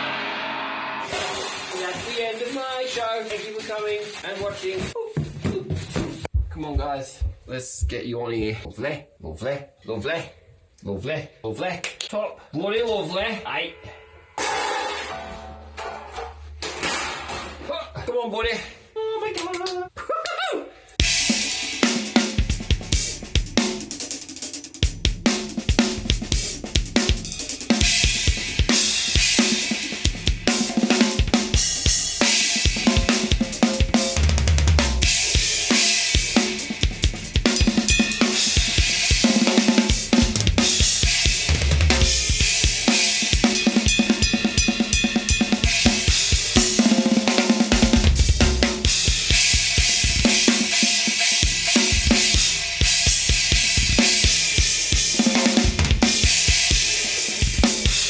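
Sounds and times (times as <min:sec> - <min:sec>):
cymbal crashes: 0:00.0 - 0:01.8, 0:37.5 - 0:46.8
drum kit groove: 0:01.0 - 0:08.6, 0:21.0 - 0:58.0
heavy low drum hits: 0:47.8 - 0:49.3.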